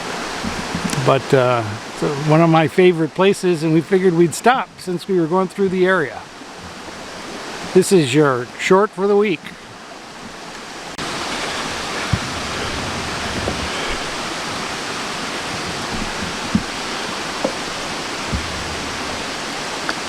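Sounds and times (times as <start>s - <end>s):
waterfall pouring: 0.0s - 8.7s, 10.7s - 20.0s
short knocks: 15.5s - 20.0s.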